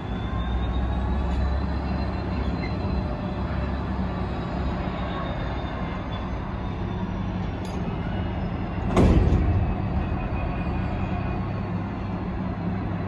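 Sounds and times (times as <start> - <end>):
freight train rumbling past: 0.0 - 13.0
sudden loud burst of noise: 8.8 - 11.6.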